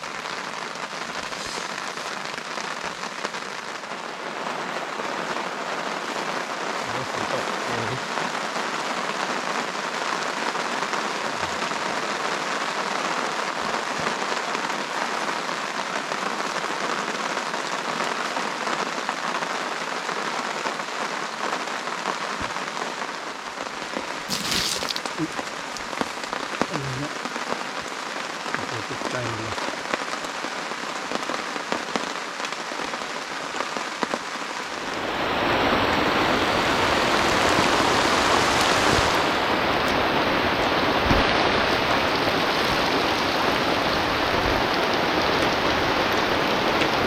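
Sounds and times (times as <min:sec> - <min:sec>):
steady rain falling: 0:00.0 - 0:47.0.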